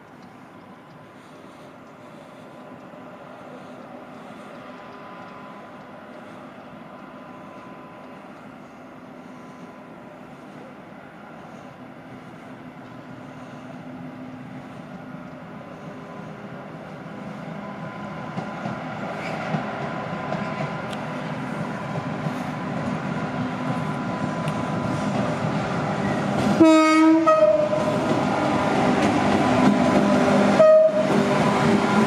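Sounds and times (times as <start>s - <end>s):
train approaching on rails: 0.0s - 32.0s
train horn blasts: 26.5s - 28.0s, 30.0s - 32.0s.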